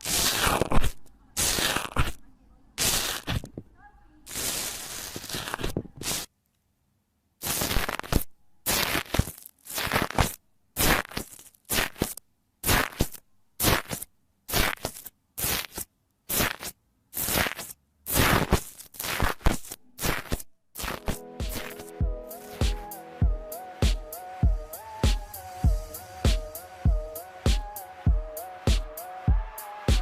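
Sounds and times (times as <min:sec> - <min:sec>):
slime crunching crackle: 0:00.0 - 0:02.2, 0:02.8 - 0:03.5, 0:04.3 - 0:06.2, 0:07.4 - 0:21.7.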